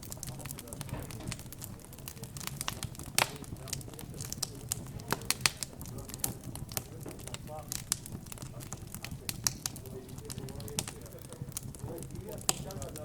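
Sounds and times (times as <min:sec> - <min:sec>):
low murmur: 0:00.0 - 0:13.0
wood fire crackling: 0:00.0 - 0:13.0.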